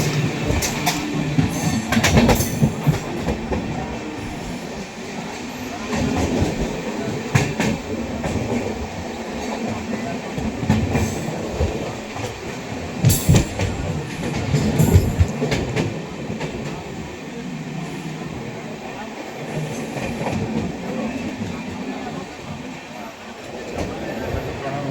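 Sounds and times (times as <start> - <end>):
wheels clacking on rail joints: 0.0 - 16.9
train wheels rumbling on track: 0.0 - 24.9.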